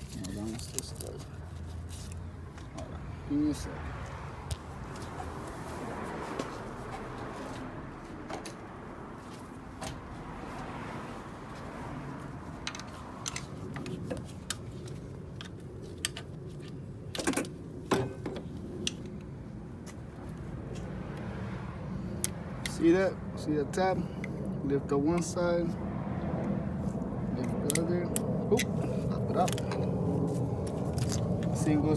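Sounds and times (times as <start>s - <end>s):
steady low hum: 13.6s - 31.9s.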